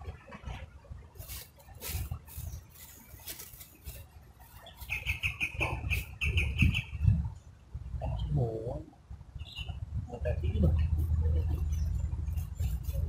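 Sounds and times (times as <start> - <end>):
rustling: 1.2 - 5.4, 10.8 - 13.0
low rumble: 5.7 - 13.0.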